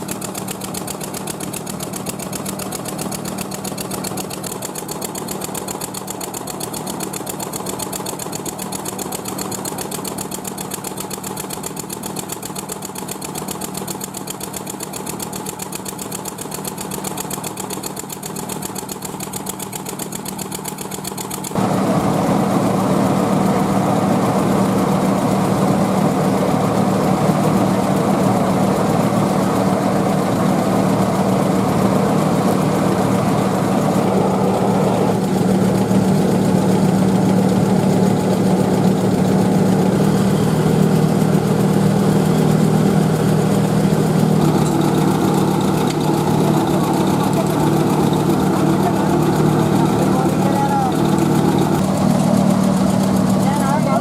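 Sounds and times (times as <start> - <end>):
machine humming: 21.6 - 54.0.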